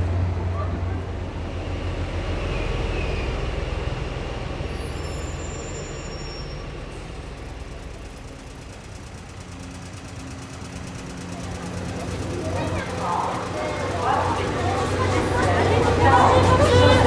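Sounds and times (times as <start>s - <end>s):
train rumbling on rails: 0.0s - 17.0s
faint high squeals: 4.7s - 7.2s.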